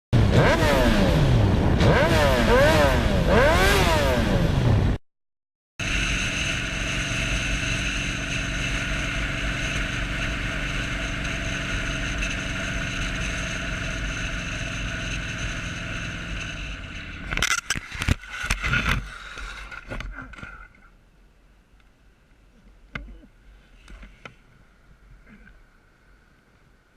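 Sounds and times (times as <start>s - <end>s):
motorcycle engine running: 0.2s - 5.0s, 5.8s - 17.8s.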